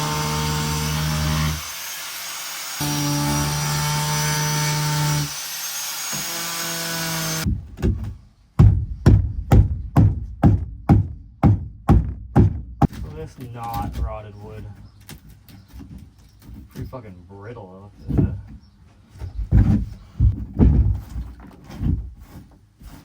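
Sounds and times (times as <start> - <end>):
angle grinder cutting: 0.0 - 7.5.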